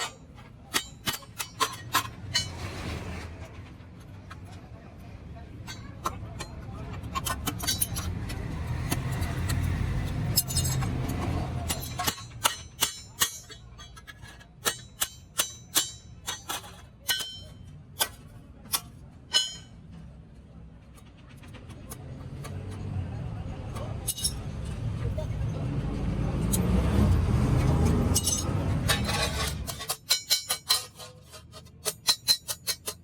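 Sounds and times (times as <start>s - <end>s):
hammer striking metal: 0.0s - 3.0s, 5.6s - 20.0s, 23.7s - 24.6s, 27.8s - 31.1s.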